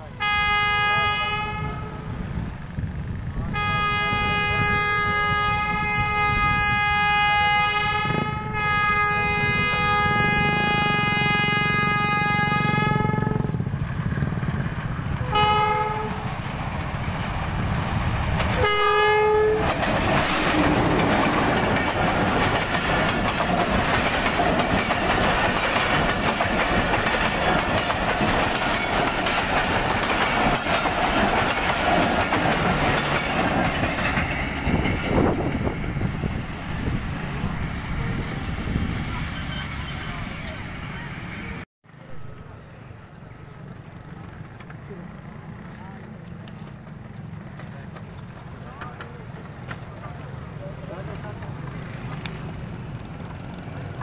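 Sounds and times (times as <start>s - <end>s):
train rumbling past: 0.0s - 54.0s
locomotive horn blasts: 0.1s - 2.2s, 3.5s - 13.6s, 15.2s - 16.3s, 18.6s - 19.7s
wheels clattering on rails: 7.6s - 41.6s, 43.5s - 54.0s.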